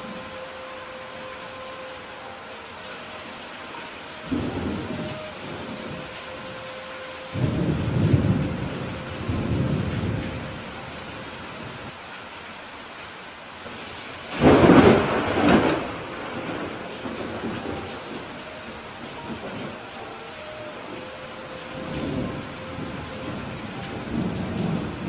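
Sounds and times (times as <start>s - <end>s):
steady rain: 0.0s - 25.0s
thunder rumbling: 4.2s - 11.9s, 14.3s - 25.0s
sharp thunderclap: 14.3s - 17.5s.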